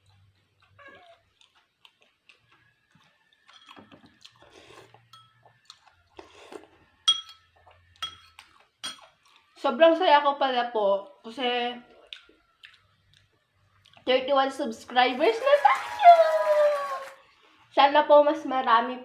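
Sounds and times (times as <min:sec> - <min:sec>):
utensil clinking against dish: 0:07.0 - 0:09.0.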